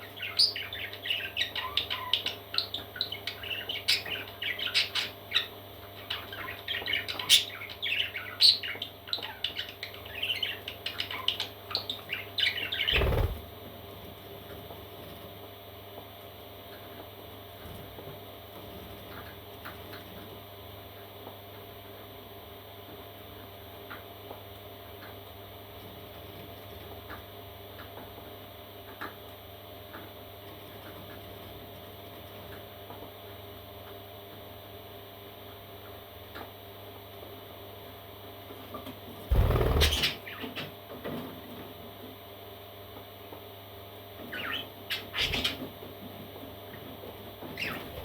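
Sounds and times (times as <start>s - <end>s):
parrot chicks peeping: 0.0s - 13.5s, 38.7s - 41.2s, 44.2s - 48.0s
steady low hum: 12.6s - 15.8s, 39.2s - 40.3s.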